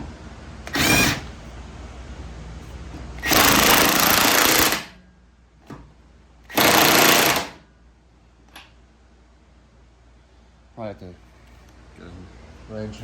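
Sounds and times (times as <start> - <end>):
impact wrench hammering: 0.7 - 1.3, 3.2 - 5.0, 6.5 - 7.6
small click: 8.5 - 8.8.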